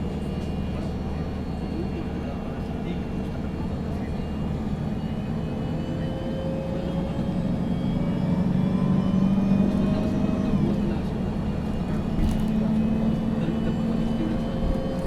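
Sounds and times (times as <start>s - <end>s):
bus engine accelerating: 0.0s - 15.0s.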